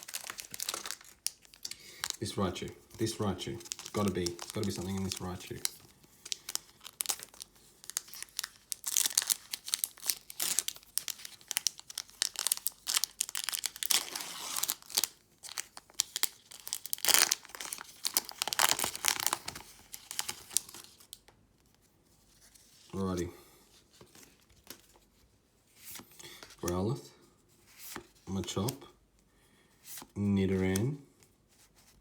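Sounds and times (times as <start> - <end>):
foil wrapper crinkling and tearing: 0.0 - 21.2.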